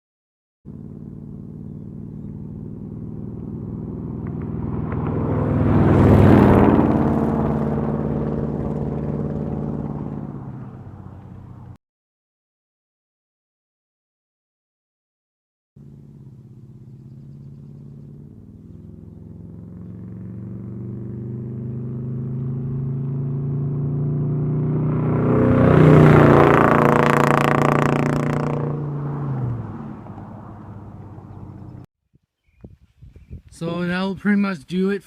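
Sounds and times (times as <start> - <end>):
pickup truck engine driving past: 0.7 - 11.8, 15.8 - 31.9.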